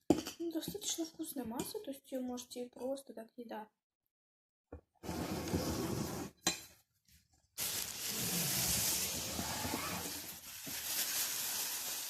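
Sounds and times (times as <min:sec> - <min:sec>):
food sizzling in frying pan: 0:10.6 - 0:12.0.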